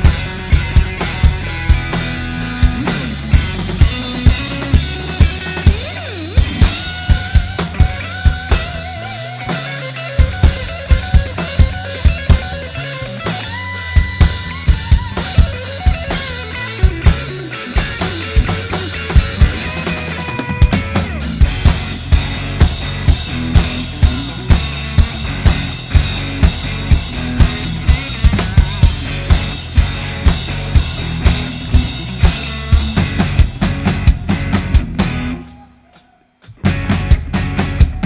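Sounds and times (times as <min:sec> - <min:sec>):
deep bass: 0:00.0 - 0:35.5, 0:36.6 - 0:38.0
drum kit beat: 0:00.0 - 0:38.0
live band playing: 0:00.0 - 0:38.0.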